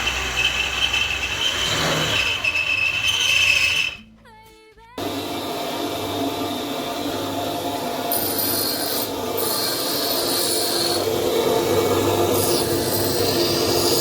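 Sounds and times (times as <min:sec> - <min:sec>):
tool rasping on metal: 0:00.0 - 0:04.0, 0:08.1 - 0:11.3, 0:12.0 - 0:14.0.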